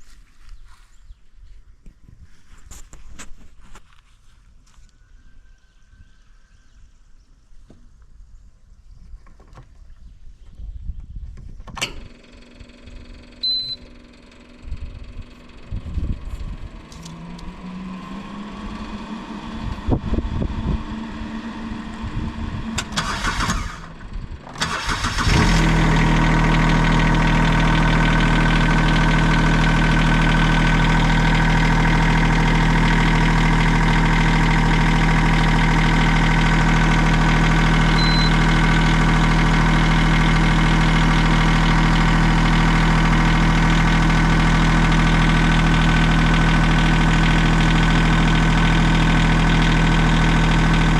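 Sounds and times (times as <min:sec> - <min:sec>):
engine starting and idling: 0:11.8 - 0:50.9.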